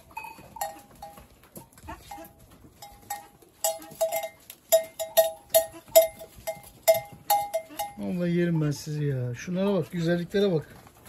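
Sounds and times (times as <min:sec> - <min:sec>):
goat bells clanking: 0:00.0 - 0:10.3.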